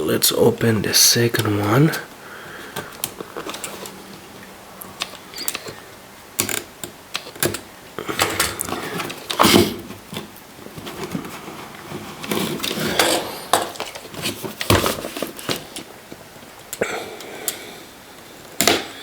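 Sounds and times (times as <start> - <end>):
cardboard box handled: 8.7 - 15.8.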